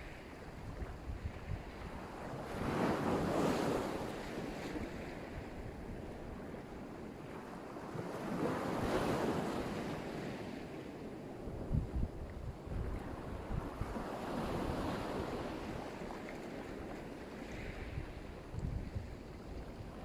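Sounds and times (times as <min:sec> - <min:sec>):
small waves breaking on shore: 0:00.0 - 0:20.0
wind buffeting microphone: 0:00.4 - 0:06.6, 0:11.4 - 0:16.9, 0:17.5 - 0:20.0.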